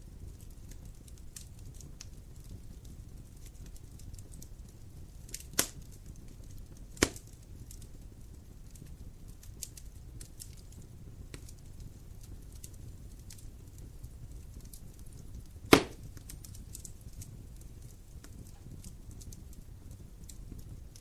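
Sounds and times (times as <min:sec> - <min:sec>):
small fire crackles: 0:00.0 - 0:21.0
wood fire rumbling: 0:00.0 - 0:21.0
loud sharp fire pops: 0:05.3 - 0:07.8, 0:08.7 - 0:21.0.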